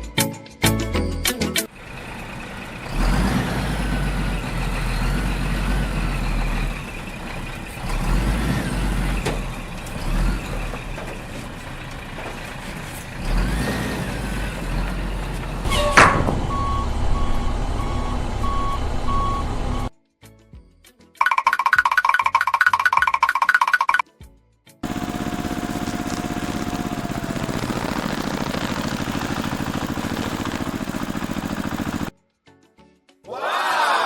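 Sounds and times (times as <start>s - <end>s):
heavy vehicle engine rumble: 1.7s - 19.9s, 24.8s - 32.1s
reversing beeper: 15.7s - 19.9s.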